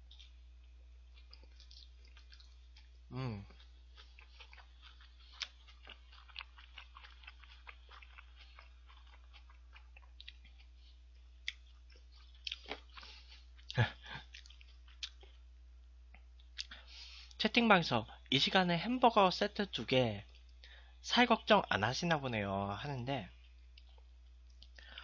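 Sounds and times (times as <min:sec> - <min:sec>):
person chewing: 0:00.0 - 0:15.5, 0:16.1 - 0:17.4, 0:23.4 - 0:25.0
throat sound: 0:03.1 - 0:03.6.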